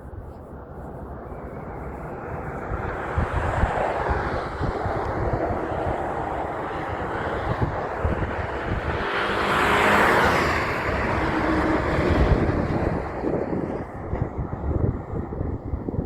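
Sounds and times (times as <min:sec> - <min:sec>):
wind buffeting microphone: 0:00.0 - 0:16.0
vehicle passing by: 0:02.0 - 0:14.6.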